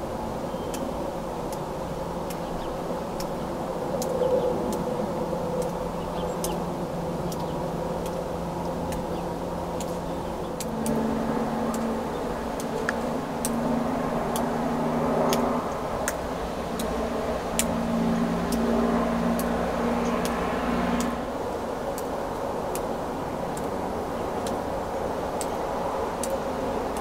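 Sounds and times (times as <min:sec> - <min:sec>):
sharp clicks: 0:09.8 - 0:11.1.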